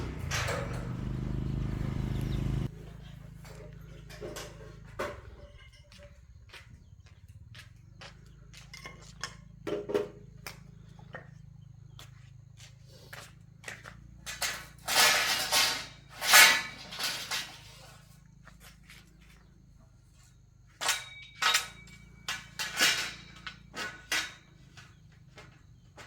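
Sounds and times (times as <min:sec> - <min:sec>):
objects scraping: 0:14.3 - 0:18.1.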